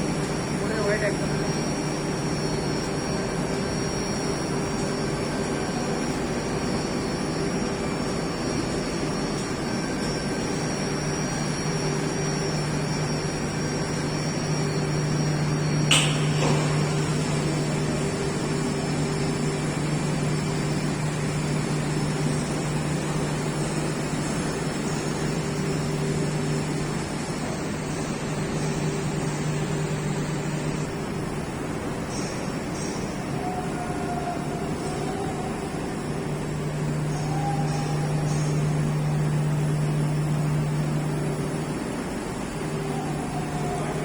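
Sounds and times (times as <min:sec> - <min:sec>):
washing machine humming: 0:00.0 - 0:44.0.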